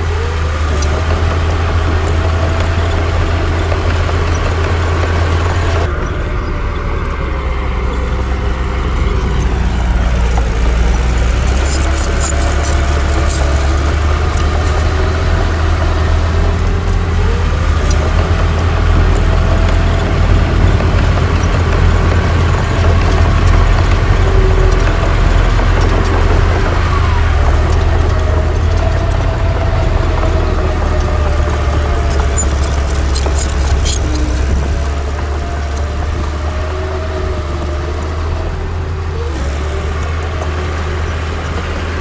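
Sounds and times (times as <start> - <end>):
heavy diesel engine rumbling: 0.0 - 42.0
metallic clanks: 7.0 - 37.0.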